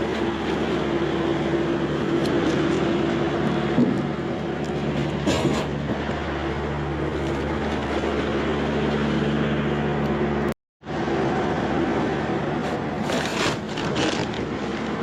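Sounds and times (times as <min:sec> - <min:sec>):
road noise: 0:00.0 - 0:15.0
vehicle engine hum: 0:00.0 - 0:15.0.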